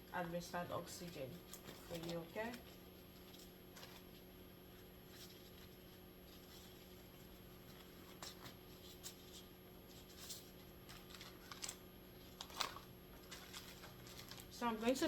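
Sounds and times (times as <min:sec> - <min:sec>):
low steady hum: 0:00.0 - 0:15.0
small objects clicking and rustling: 0:01.0 - 0:04.1.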